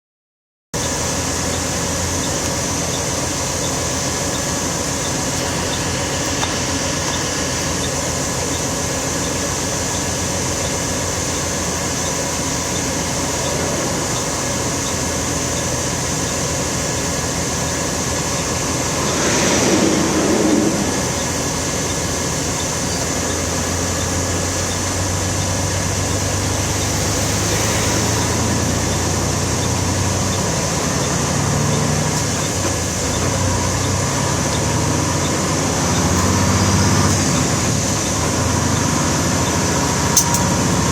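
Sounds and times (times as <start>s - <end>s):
vehicle engine idling: 0.8s - 40.9s
vehicle passing by: 18.0s - 22.7s, 26.4s - 30.0s.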